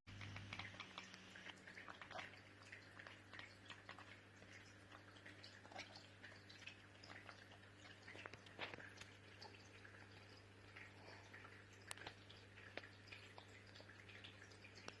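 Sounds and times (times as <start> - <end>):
faint small clicks: 0.1 - 2.2, 11.7 - 15.0.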